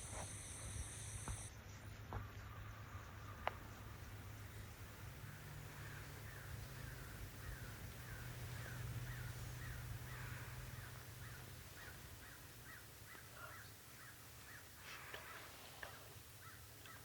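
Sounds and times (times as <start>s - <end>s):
steady low hum: 0.0s - 16.5s
bird calling: 5.8s - 15.5s.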